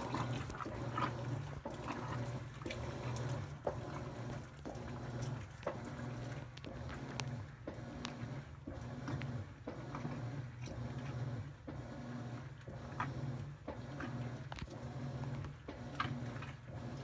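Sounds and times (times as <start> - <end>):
water sloshing: 0.0 - 7.8
washing machine motor humming: 0.0 - 17.0.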